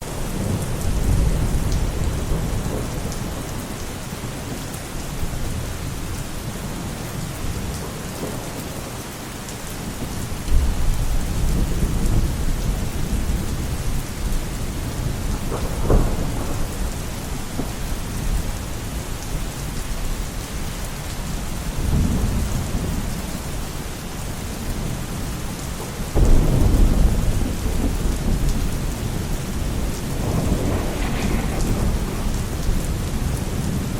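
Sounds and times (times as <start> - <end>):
thunder rumbling: 0.0 - 4.5, 10.0 - 19.4, 26.1 - 33.9
heavy rain: 0.0 - 33.9
sharp thunder crack: 15.4 - 17.0, 26.2 - 33.7.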